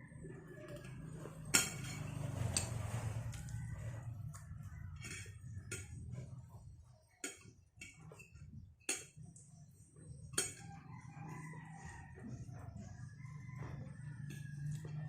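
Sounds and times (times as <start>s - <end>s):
utensils clicking on plate: 0.7s - 3.6s, 4.4s - 6.2s, 10.2s - 10.8s.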